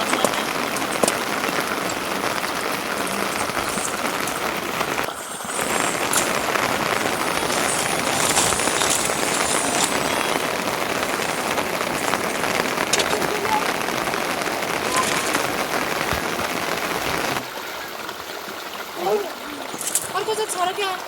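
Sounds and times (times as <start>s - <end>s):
raindrop ticks: 0.0s - 18.6s, 19.6s - 21.0s
steady rain falling: 0.0s - 21.0s.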